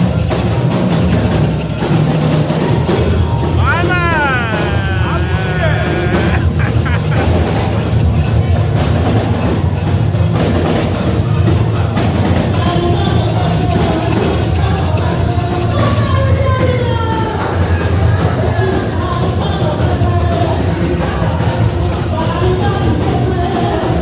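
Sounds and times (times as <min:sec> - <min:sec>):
bass: 0:00.0 - 0:24.0
person singing: 0:03.5 - 0:07.3.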